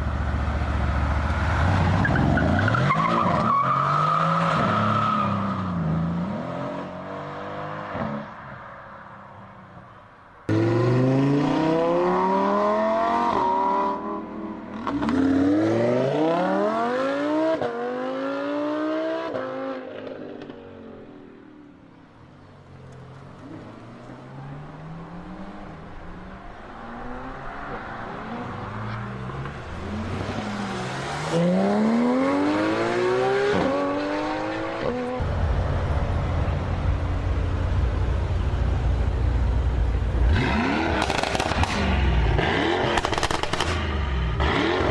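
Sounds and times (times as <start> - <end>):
loud low engine rumble: 0.0 - 2.6, 35.2 - 42.3
car engine accelerating through gears: 0.0 - 3.6, 29.8 - 43.2.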